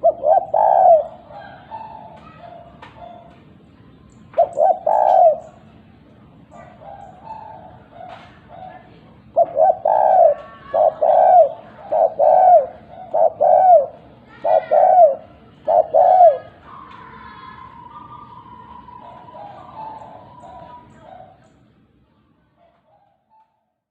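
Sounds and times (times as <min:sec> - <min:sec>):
dove cooing: 0:00.0 - 0:03.5, 0:04.3 - 0:05.8, 0:06.4 - 0:21.6.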